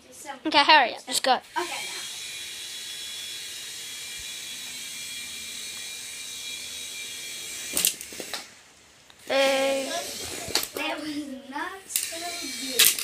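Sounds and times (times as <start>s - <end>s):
toy helicopter motor whining: 1.4s - 8.5s, 9.2s - 10.8s, 11.9s - 13.0s
toy helicopter crashing clatter: 1.6s - 8.5s, 11.9s - 13.0s.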